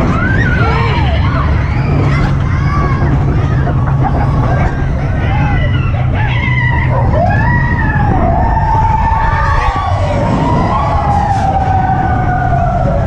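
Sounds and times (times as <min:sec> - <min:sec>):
roller coaster cars rumbling: 0:00.0 - 0:13.0
long high wail: 0:05.3 - 0:13.0.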